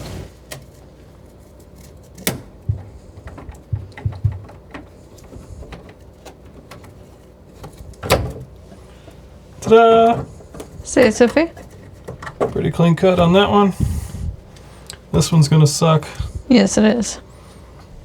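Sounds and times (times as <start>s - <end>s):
pipe and tools clicking and knocking: 1.8s - 13.6s
dull thumps: 2.2s - 14.5s.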